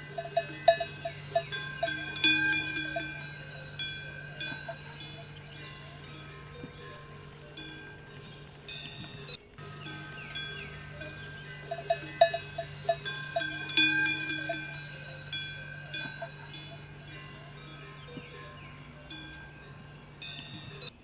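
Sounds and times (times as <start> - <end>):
metal bells clanking: 0.0 - 21.0
steady low hum: 0.0 - 21.0.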